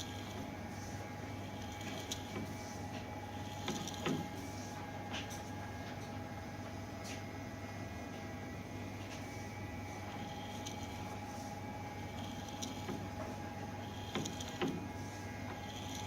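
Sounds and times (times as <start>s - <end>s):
lathe running with hum and whine: 0.0s - 16.0s.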